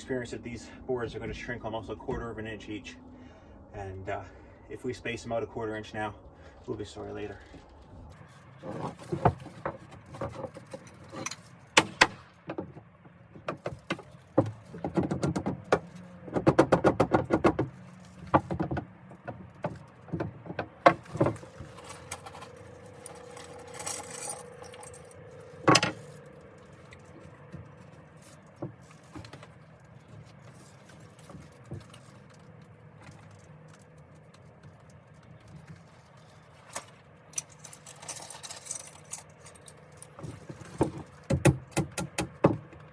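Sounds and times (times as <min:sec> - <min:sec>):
sharp knocks and clicks: 0:09.1 - 0:21.5, 0:40.7 - 0:42.9
light metallic rattling: 0:17.7 - 0:42.0.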